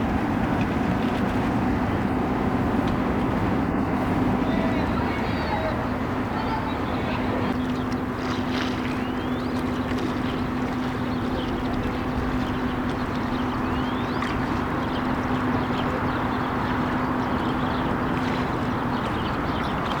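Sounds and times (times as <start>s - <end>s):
broad rushing noise: 0.0s - 9.0s
ship engine low hum: 0.0s - 20.0s.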